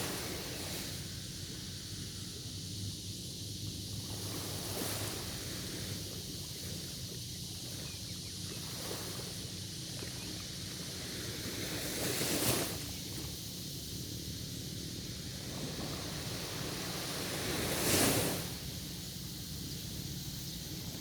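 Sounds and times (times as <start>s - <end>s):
sea waves washing in: 14.3s - 20.4s.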